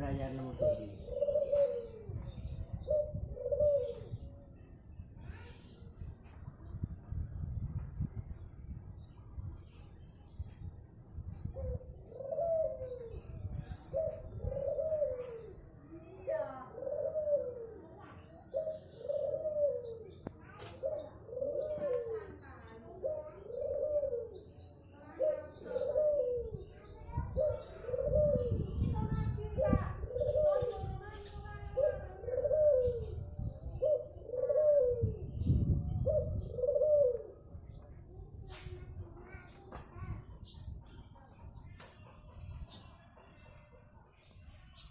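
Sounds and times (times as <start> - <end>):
dove cooing: 0.0 - 4.5, 11.5 - 37.6.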